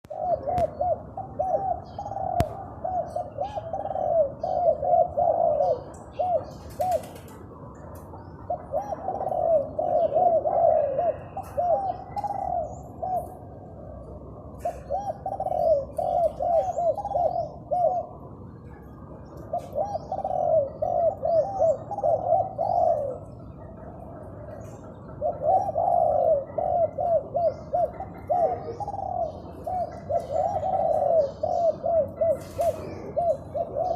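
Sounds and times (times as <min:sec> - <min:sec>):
dove cooing: 0:00.0 - 0:33.9.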